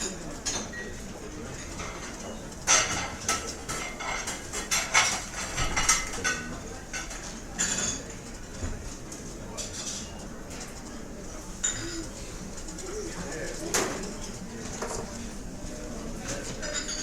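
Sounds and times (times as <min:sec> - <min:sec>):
cutlery and dishes clinking: 0:01.5 - 0:08.2, 0:11.6 - 0:15.2, 0:16.2 - 0:17.0.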